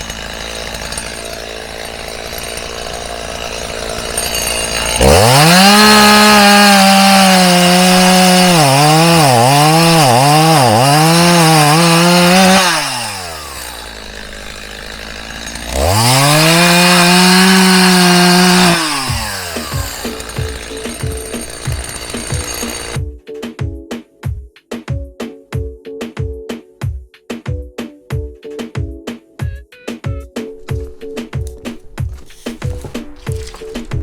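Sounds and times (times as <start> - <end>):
chainsaw revving: 0.0 - 23.0, 30.5 - 34.0.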